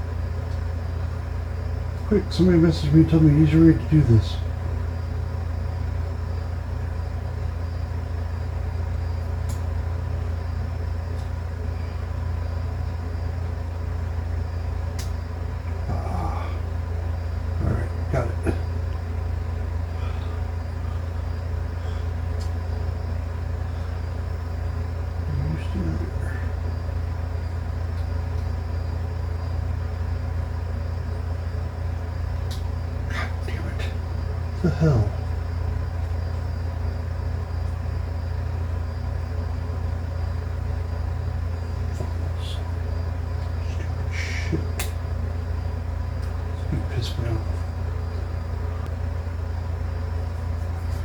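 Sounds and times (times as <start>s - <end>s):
steady low hum: 0.0s - 51.0s
faint light clicks: 9.2s - 9.7s, 14.9s - 15.2s, 22.4s - 22.6s, 32.4s - 32.7s.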